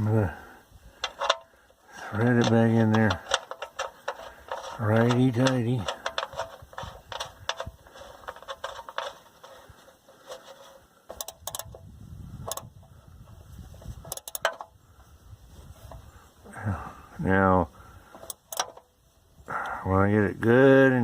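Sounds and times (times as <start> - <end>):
wrench clicking on metal: 1.0 - 1.5, 11.1 - 11.8, 12.4 - 12.7, 14.0 - 14.7, 18.2 - 18.8.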